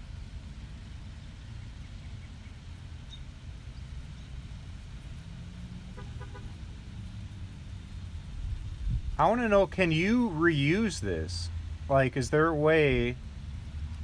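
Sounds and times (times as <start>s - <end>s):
low background rumble: 6.1s - 14.0s.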